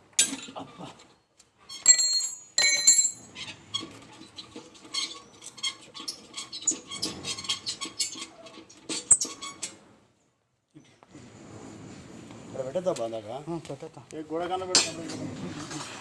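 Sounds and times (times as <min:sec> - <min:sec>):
ringing metallic clanks: 0:01.8 - 0:03.3.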